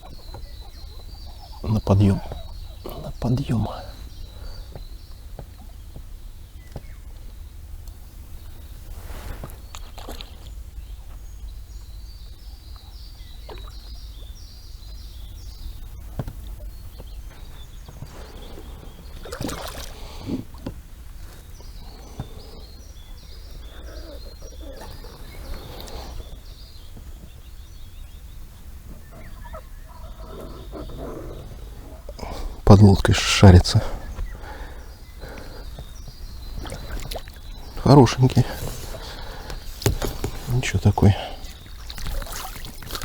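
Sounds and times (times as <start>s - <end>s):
bird chirping: 0.0s - 43.0s
water sloshing around boat: 16.4s - 22.1s, 35.2s - 43.0s.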